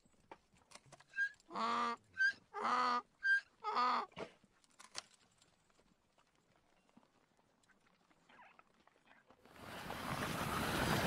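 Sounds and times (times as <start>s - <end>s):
donkey braying: 1.1s - 4.2s.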